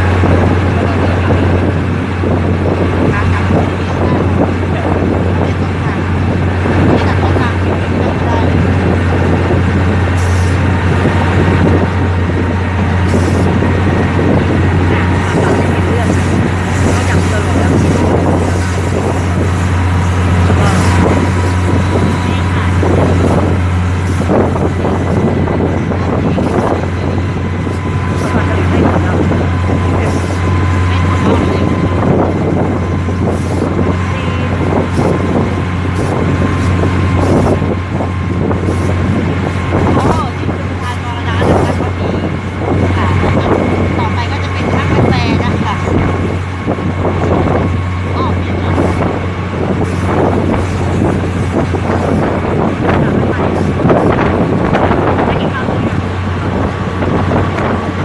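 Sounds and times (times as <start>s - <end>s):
train carriage hum and rumble: 0.0s - 58.0s
wind on microphone: 0.0s - 58.0s
hissy rushes: 10.0s - 31.8s.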